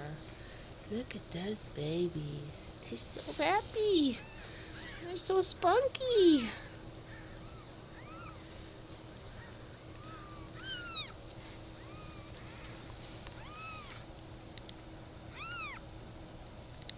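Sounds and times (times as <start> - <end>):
kittens mewing: 4.1 - 5.3, 6.4 - 14.1, 15.3 - 15.9.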